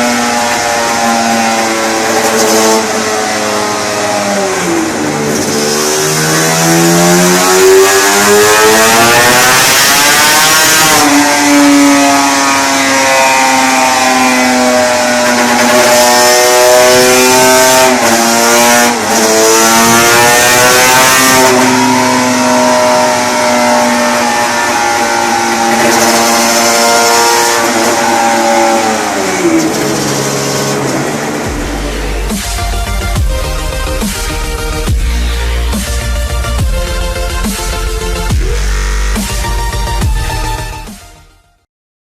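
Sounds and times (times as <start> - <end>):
two-stroke motorcycle engine: 0.0 - 36.9.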